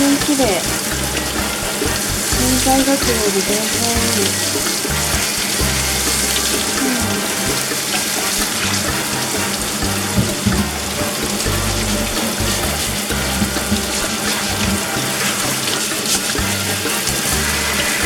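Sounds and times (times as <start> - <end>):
tap water running and splashing: 0.0 - 10.7
background music: 0.0 - 18.0.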